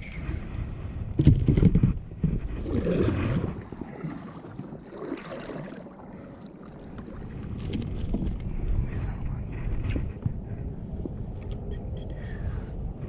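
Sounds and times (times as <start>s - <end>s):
water sloshing around a kayak: 0.0s - 11.3s.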